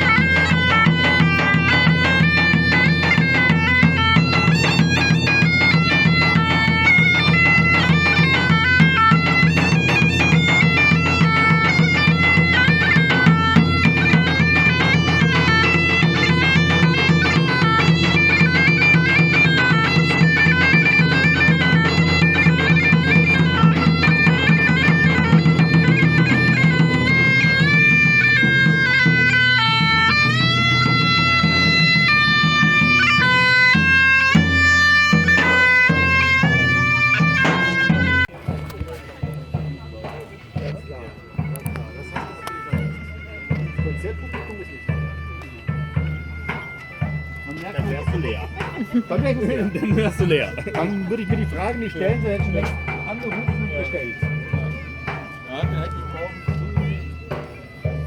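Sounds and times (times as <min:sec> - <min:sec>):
bagpipes playing a fast melody: 0:00.0 - 0:58.0.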